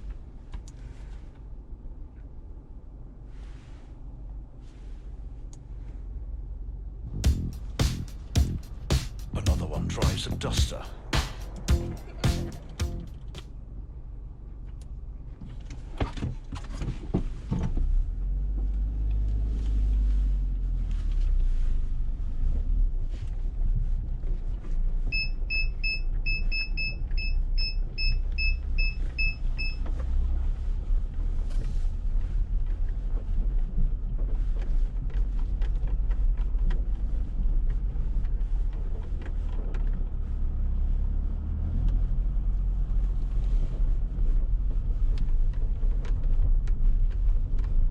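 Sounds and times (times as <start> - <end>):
car engine running: 6.4 - 14.6.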